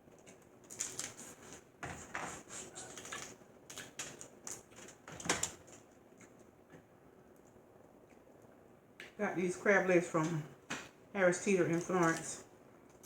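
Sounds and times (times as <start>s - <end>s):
crab shells clicking and snapping: 0.1s - 1.2s, 2.9s - 6.4s.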